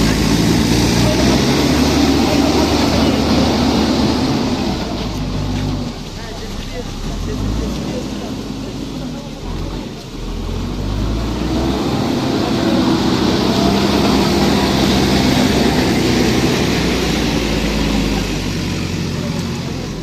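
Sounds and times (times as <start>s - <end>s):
heavy machinery engine running: 0.0s - 20.0s.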